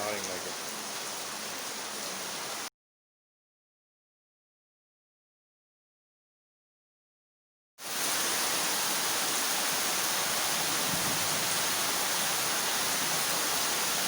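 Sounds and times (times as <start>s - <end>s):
heavy rain pouring: 0.0s - 2.7s, 7.8s - 14.0s.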